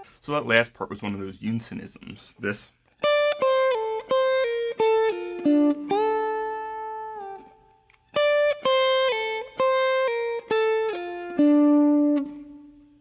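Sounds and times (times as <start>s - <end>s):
clean guitar lick: 3.0s - 13.0s.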